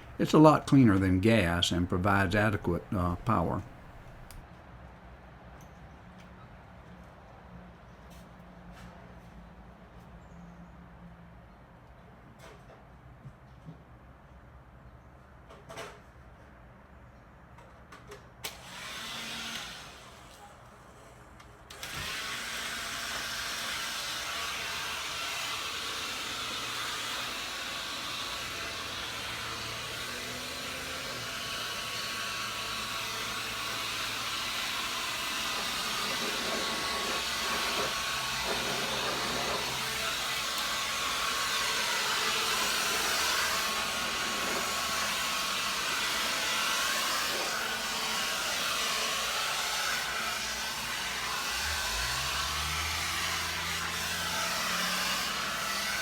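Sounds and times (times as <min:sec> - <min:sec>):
leaf blower running: 0:18.6 - 0:20.1, 0:21.7 - 0:56.0.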